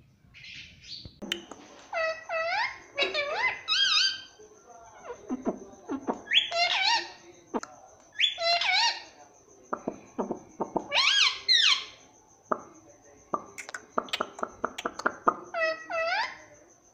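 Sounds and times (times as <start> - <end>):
parrot calls: 1.8 - 7.2, 8.2 - 9.2, 9.8 - 12.0, 13.6 - 16.4.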